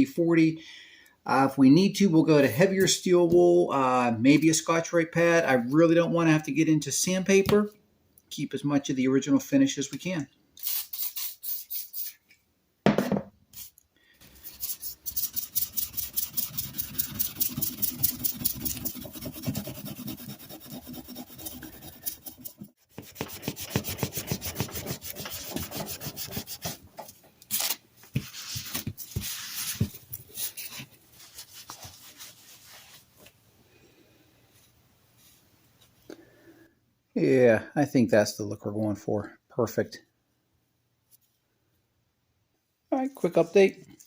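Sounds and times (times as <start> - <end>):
steel wool scrubbing metal: 14.3 - 26.6.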